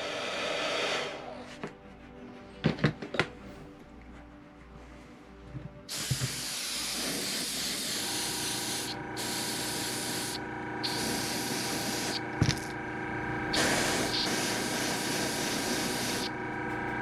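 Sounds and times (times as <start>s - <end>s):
airbrush spraying hiss: 5.9s - 16.8s.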